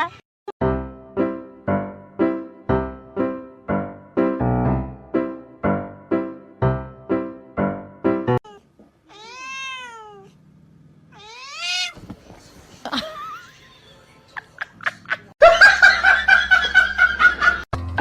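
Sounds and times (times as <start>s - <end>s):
cat meowing: 8.4s - 10.4s, 11.1s - 12.0s.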